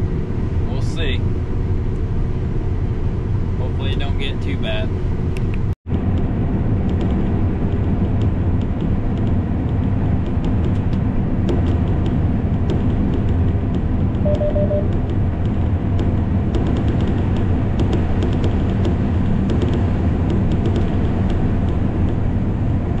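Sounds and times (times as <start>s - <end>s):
combine harvester engine drone: 0.0s - 23.0s.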